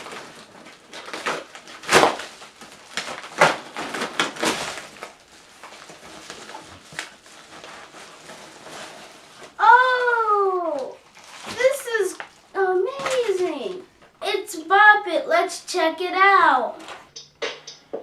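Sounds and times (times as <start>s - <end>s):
packaging tearing and crinkling: 0.0s - 13.8s.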